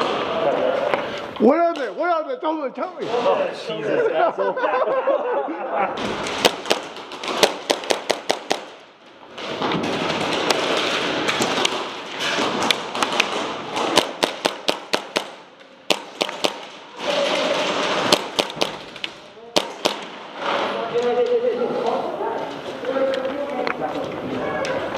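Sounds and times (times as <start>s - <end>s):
airsoft guns firing: 6.0s - 20.7s.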